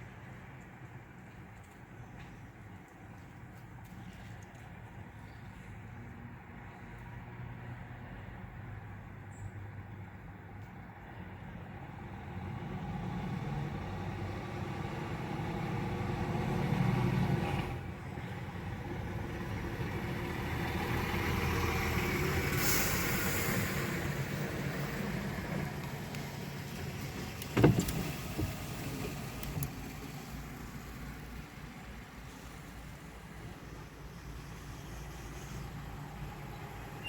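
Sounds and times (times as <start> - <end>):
trucks driving past: 0.0 - 37.0
hiss: 22.4 - 24.0.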